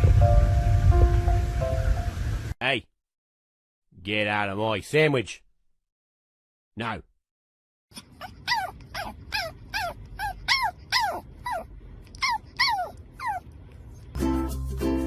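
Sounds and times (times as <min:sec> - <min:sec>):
music: 0:00.0 - 0:02.5, 0:14.2 - 0:15.0
dog whimpering: 0:07.9 - 0:13.5.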